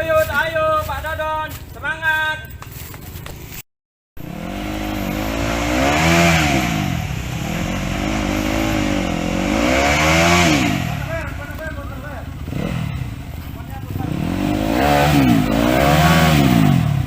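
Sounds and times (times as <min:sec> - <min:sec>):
motorcycle engine revving: 0:04.2 - 0:17.0.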